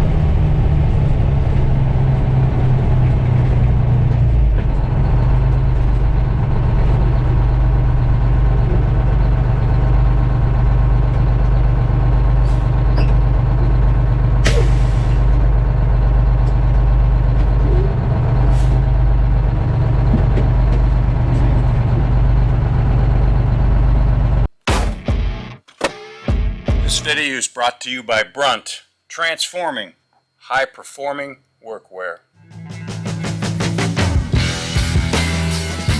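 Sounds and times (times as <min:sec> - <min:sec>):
truck diesel engine running: 0:00.0 - 0:24.5.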